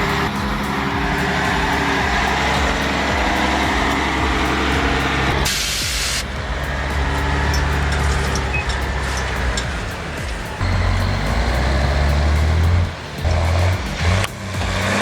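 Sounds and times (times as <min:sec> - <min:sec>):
air brakes hissing: 0:00.0 - 0:15.0
diesel truck engine running: 0:00.0 - 0:15.0.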